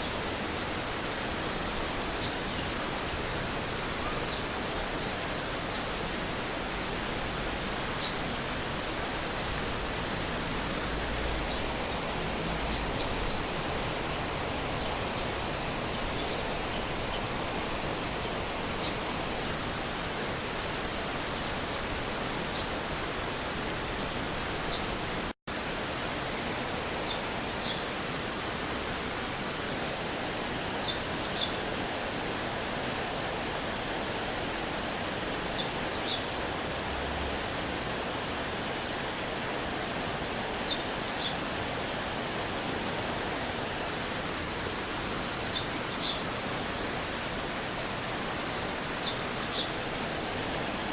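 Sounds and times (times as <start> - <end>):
stream water running: 0.0 - 50.9.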